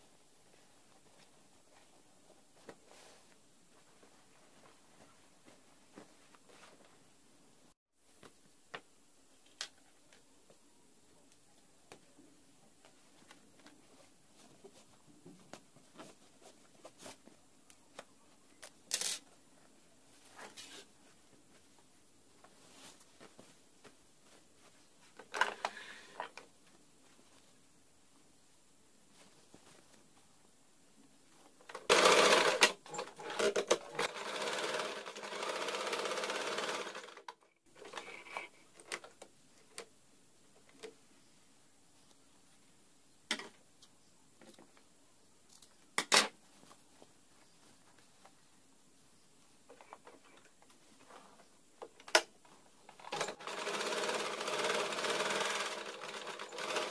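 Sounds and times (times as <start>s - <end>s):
rustling: 0.0s - 7.2s, 8.0s - 34.1s, 43.6s - 56.9s
sewing machine stitching: 31.7s - 37.3s, 53.0s - 56.9s.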